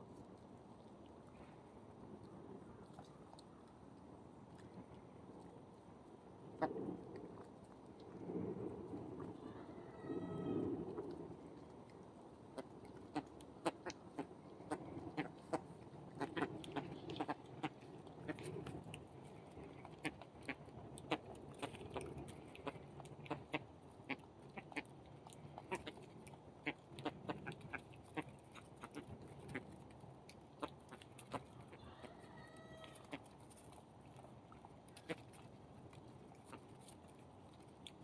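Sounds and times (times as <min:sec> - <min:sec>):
birds clucking and chattering: 0:12.4 - 0:37.1.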